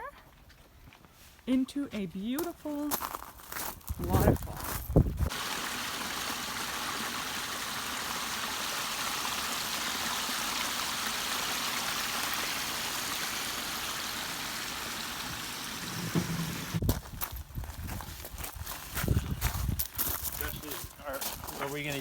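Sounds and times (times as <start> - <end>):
water splashing over rocks: 5.3 - 16.8.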